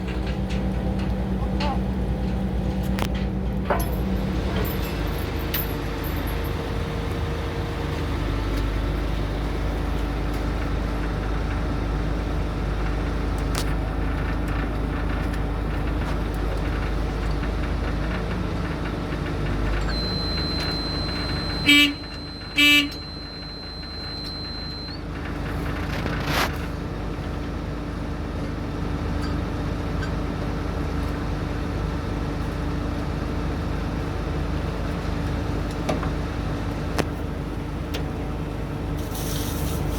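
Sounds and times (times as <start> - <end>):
heavy machine engine rumbling: 0.0 - 39.9
vehicle horn toots: 19.9 - 23.4.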